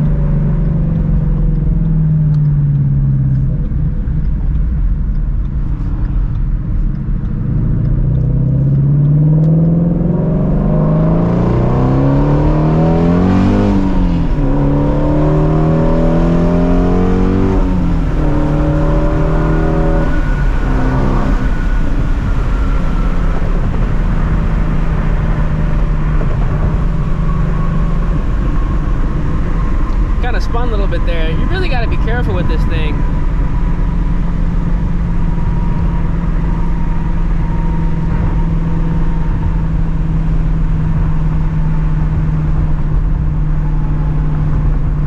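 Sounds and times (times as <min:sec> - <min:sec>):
car engine accelerating hard: 0:00.0 - 0:45.0.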